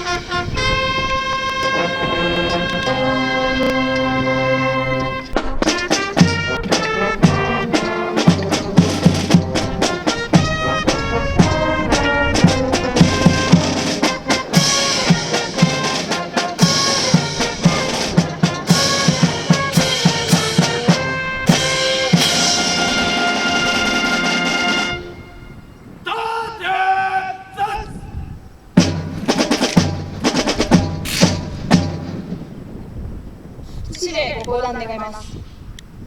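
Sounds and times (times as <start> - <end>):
brass band playing: 0.0 - 26.0, 28.8 - 32.4
steady drum beat: 5.4 - 25.2, 28.8 - 32.5.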